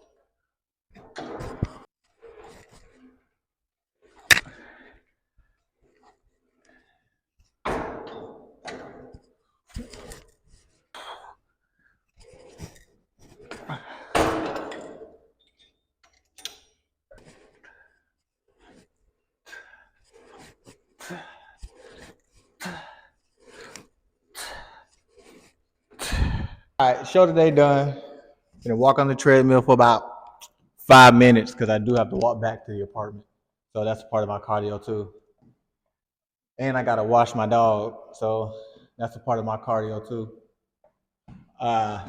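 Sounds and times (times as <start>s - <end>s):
sharp metal clank: 4.3s - 4.5s
man breathing hard: 26.0s - 26.8s.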